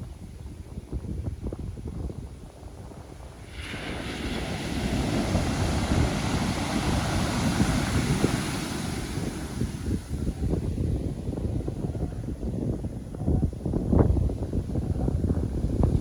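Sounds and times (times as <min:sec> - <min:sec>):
wind buffeting microphone: 0:00.0 - 0:16.0
ocean surf: 0:03.2 - 0:11.1
wave breaking with hissing wash: 0:03.5 - 0:10.0.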